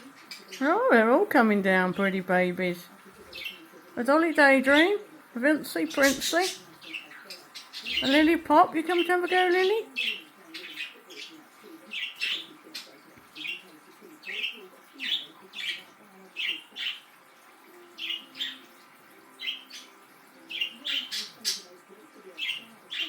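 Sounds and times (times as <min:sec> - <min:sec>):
warbling chatter: 0:00.0 - 0:23.0
budgerigars chirping: 0:05.9 - 0:17.2, 0:17.9 - 0:23.0.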